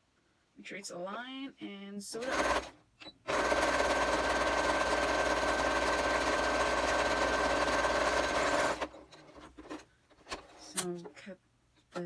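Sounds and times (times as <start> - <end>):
sewing machine stitching: 2.2 - 10.9.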